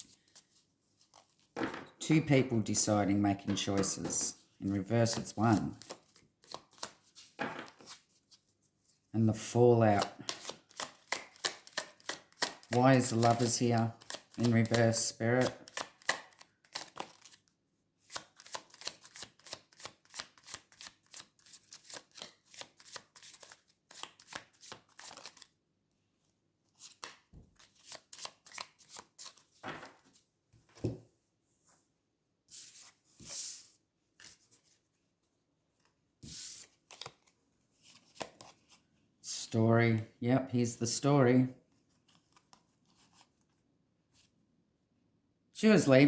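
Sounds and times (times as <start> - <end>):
card rustles and taps: 3.4 - 4.4
cards being shuffled: 3.4 - 8.1, 9.8 - 17.4, 18.1 - 25.5, 26.8 - 30.2, 36.3 - 38.8.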